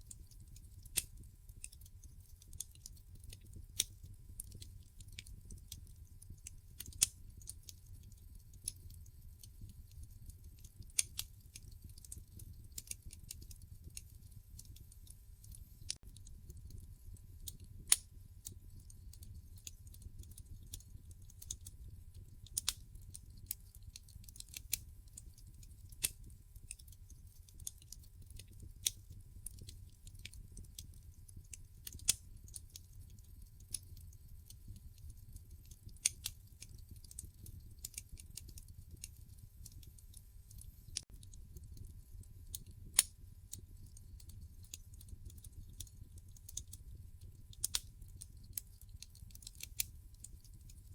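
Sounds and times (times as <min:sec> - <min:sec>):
log fire crackling: 0:00.0 - 0:50.9
low rumble of flames: 0:00.0 - 0:50.9.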